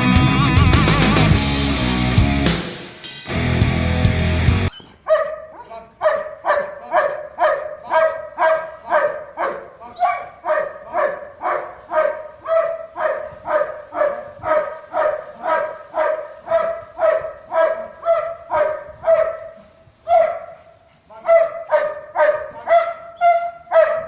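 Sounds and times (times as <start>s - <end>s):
dog barking: 5.0s - 24.0s.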